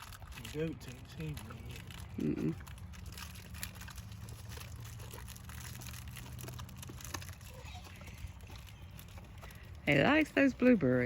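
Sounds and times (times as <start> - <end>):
donkey chewing crunching: 0.0 - 11.0.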